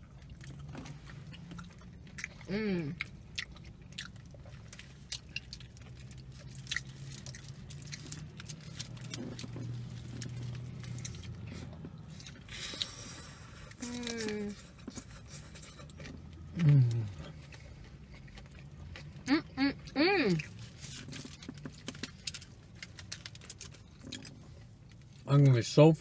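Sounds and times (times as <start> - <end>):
chewing and biting: 0.0 - 25.2
person humming: 2.5 - 3.0, 16.5 - 17.2.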